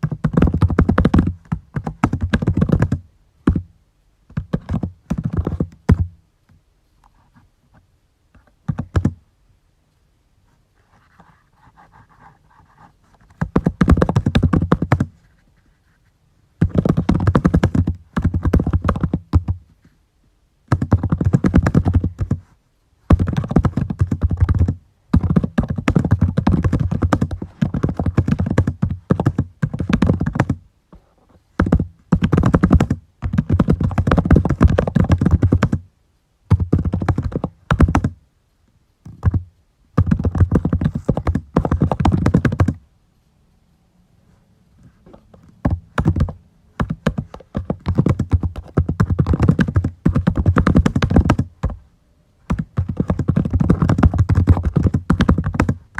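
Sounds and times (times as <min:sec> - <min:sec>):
typing on computer keyboard: 0:23.1 - 0:30.6, 0:36.5 - 0:38.1, 0:40.0 - 0:42.8, 0:45.7 - 0:51.5, 0:52.5 - 0:55.8.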